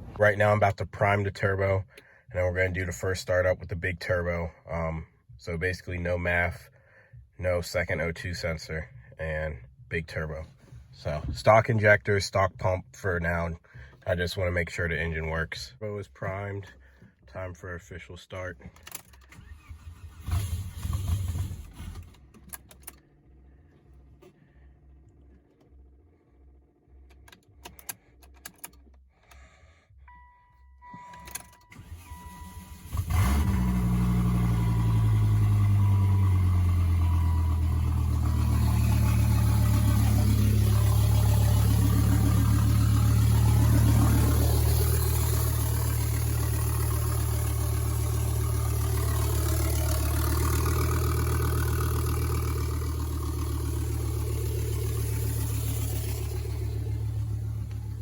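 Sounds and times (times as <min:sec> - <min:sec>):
unmuffled car engine running: 0:00.0 - 0:17.4, 0:18.5 - 0:58.0
engine starter clicks: 0:18.7 - 0:23.1, 0:30.8 - 0:33.7.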